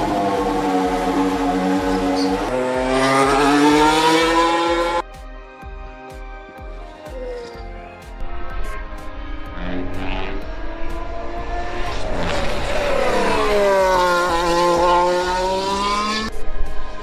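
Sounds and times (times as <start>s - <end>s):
high-revving racing engine: 0.0s - 5.0s, 8.7s - 17.0s.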